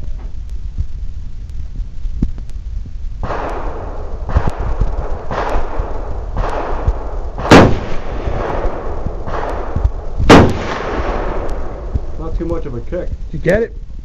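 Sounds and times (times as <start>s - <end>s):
loud rifle shot: 3.2s - 12.2s.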